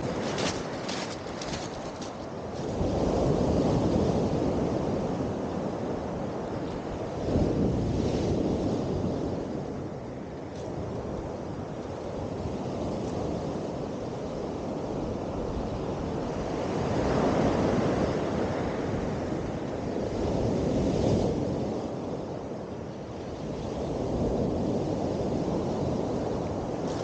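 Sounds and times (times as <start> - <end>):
sea waves breaking: 0.0 - 5.3
wind buffeting microphone: 0.0 - 27.0.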